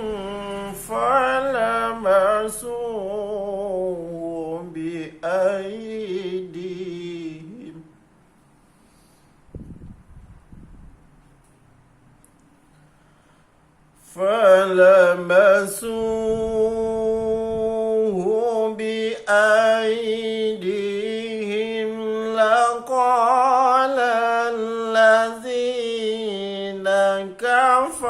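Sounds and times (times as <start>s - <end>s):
man reciting melodically: 0.0s - 8.1s, 14.0s - 28.0s.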